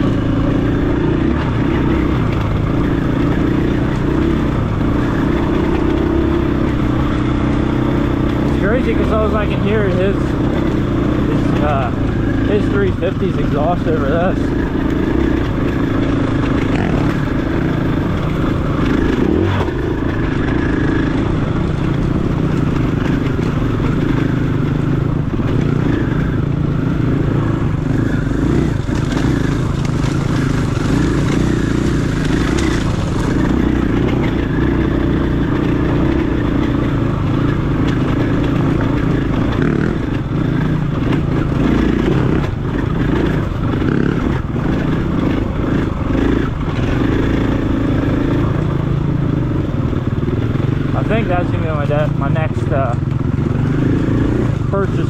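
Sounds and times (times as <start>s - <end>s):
dirt bike engine running: 0.0s - 55.0s.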